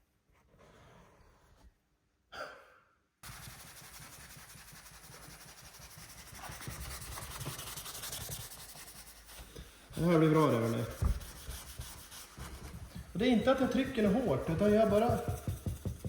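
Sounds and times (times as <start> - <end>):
brush scrubbing car paint: 3.2 - 16.0.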